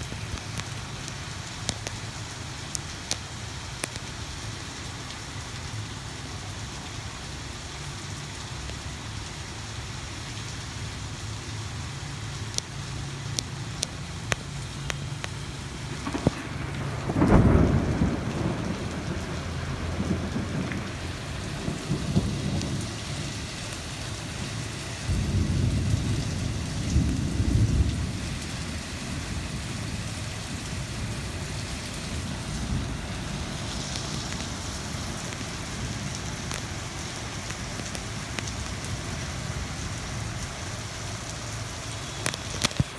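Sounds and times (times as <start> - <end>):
rain hissing: 0.0 - 42.9
drip ticks: 0.1 - 4.2, 8.6 - 8.8, 12.3 - 15.4, 33.8 - 39.0, 42.1 - 42.9
thunder rolling: 15.3 - 39.9.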